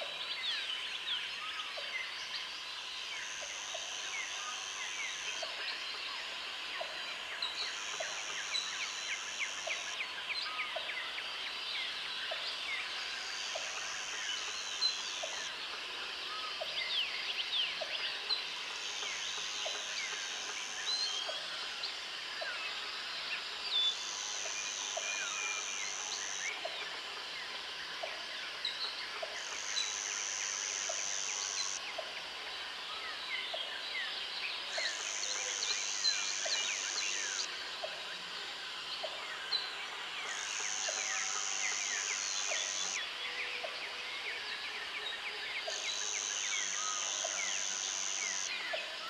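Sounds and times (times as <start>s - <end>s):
insects: 0.0s - 49.0s
high insect buzz: 45.9s - 48.5s.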